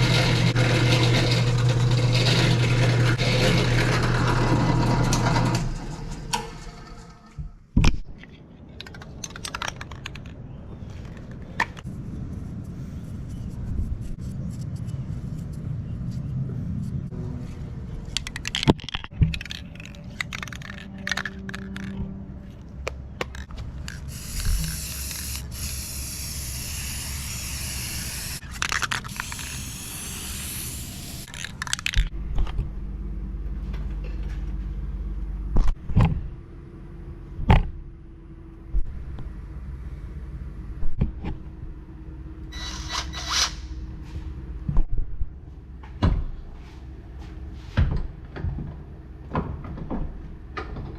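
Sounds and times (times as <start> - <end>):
tools and wood scraping and knocking: 18.0 - 25.2
hissing: 24.0 - 28.4, 29.1 - 31.3.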